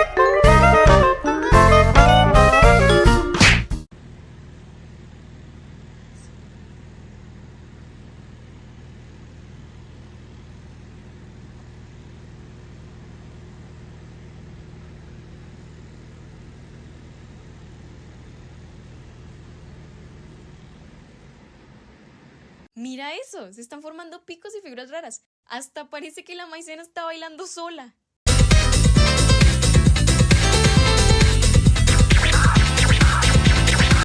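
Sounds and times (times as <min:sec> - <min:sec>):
jazz music: 0:00.0 - 0:03.9, 0:28.3 - 0:34.0.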